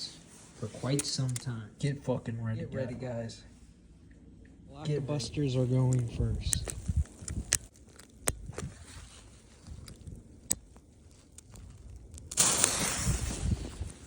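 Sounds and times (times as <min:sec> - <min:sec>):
sharp clicks: 0:05.8 - 0:08.7
firecracker fuse fizzing: 0:12.3 - 0:14.0.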